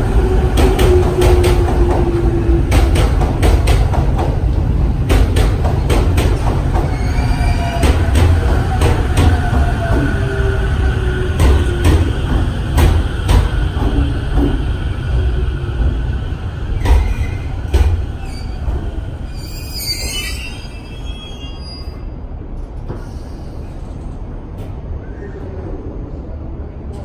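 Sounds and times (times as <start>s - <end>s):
train rumbling: 0.0s - 27.0s
high wheel squeal: 19.3s - 22.0s.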